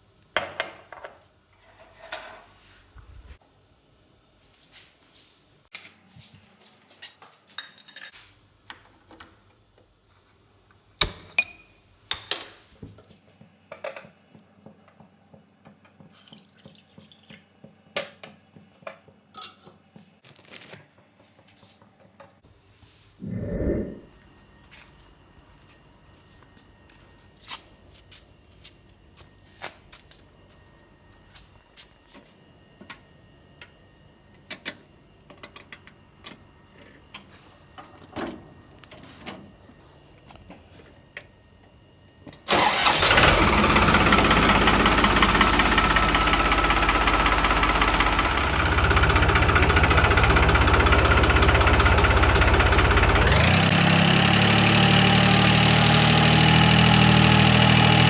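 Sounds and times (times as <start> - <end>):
tractor diesel engine: 42.5 - 58.0.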